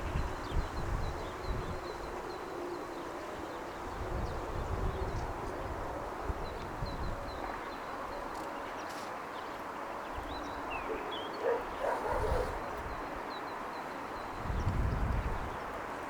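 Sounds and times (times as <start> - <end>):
city ambience: 0.0 - 14.5
dog barking: 10.9 - 12.6.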